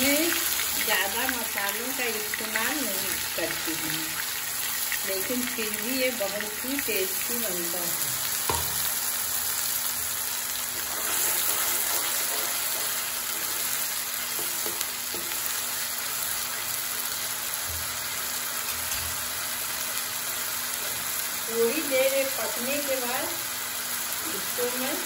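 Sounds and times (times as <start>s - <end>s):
paste sizzling in hot oil: 0.0s - 25.0s
spoon stirring and knocking pan: 8.4s - 8.9s, 14.3s - 15.6s.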